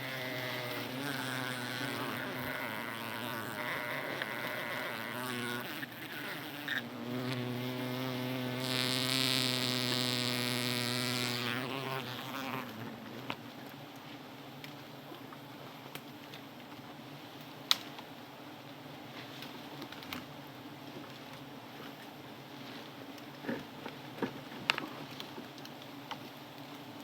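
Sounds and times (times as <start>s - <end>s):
bees buzzing: 0.0s - 12.8s.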